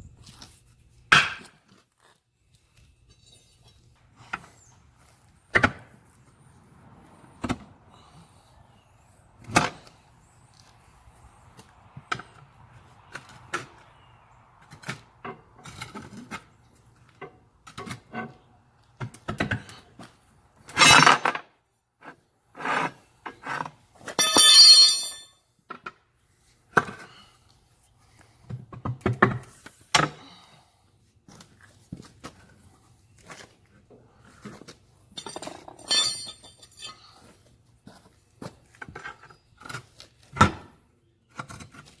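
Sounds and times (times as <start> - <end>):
ringing metal clang: 24.2 - 25.3, 35.2 - 37.1.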